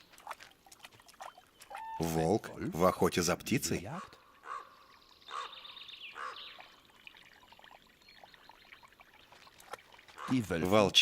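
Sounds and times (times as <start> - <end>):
soft water splashes: 0.0 - 11.0
bird twittering: 4.0 - 10.4.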